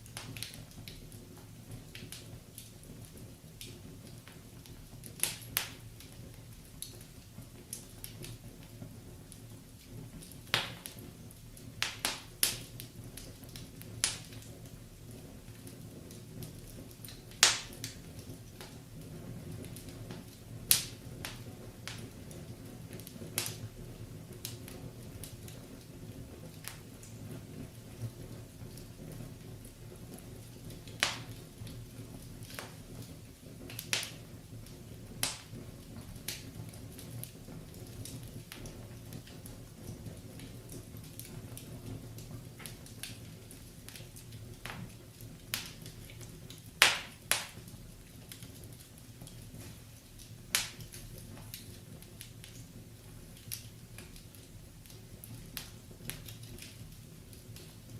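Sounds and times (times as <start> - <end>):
fire popping: 0.0 - 57.9
wood fire crackling: 0.0 - 57.9.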